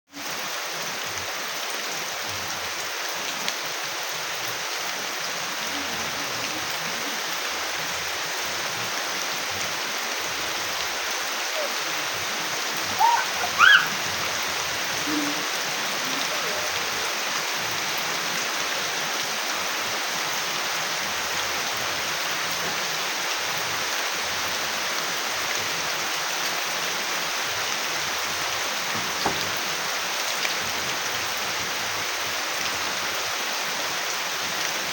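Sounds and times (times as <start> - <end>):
steady rain hissing: 0.1 - 34.9
brief high calls: 11.4 - 16.8.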